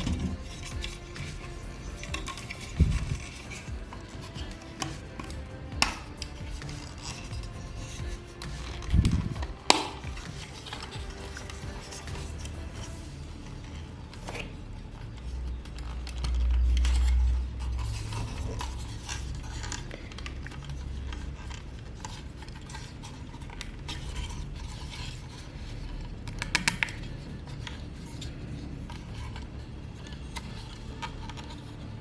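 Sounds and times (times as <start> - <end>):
low rumbling bump: 0.0 - 13.8.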